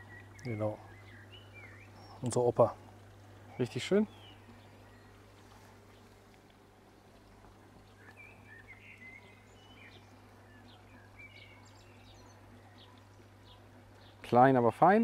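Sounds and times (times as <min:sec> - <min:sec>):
faint bird chirps: 0:00.0 - 0:02.8, 0:03.5 - 0:14.2
low steady hum: 0:00.0 - 0:15.0.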